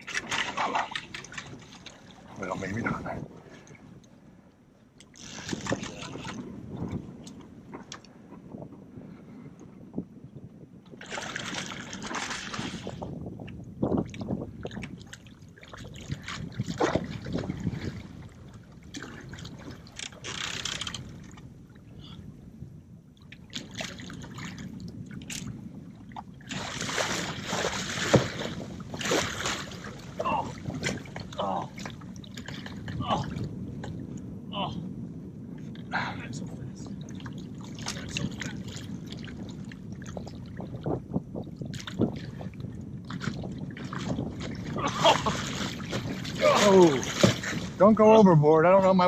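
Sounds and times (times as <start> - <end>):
water lapping: 0.0 - 4.4, 11.0 - 13.2, 13.9 - 22.3, 23.3 - 34.0, 35.6 - 40.9, 41.7 - 49.0
water splashing against boat: 0.0 - 8.9, 10.8 - 22.2, 23.1 - 34.3, 35.6 - 49.0.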